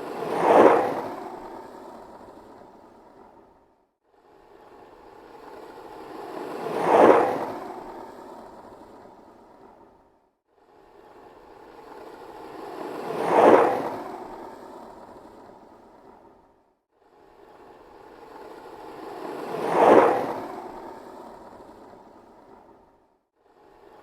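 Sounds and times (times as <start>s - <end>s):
skateboard wheels rolling on pavement: 0.0s - 1.9s, 5.7s - 7.8s, 12.1s - 14.2s, 18.5s - 21.2s.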